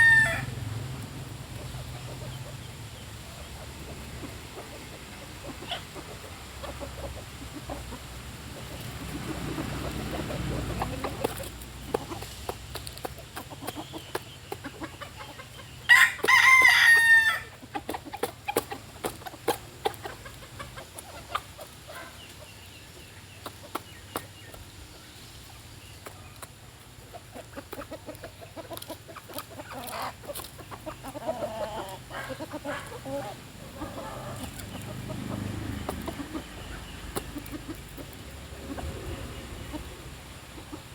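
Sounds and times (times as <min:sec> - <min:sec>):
rooster crowing: 0:00.0 - 0:00.6, 0:15.9 - 0:17.5
chickens pecking at rice: 0:00.0 - 0:40.9
hens clucking softly: 0:00.0 - 0:40.9.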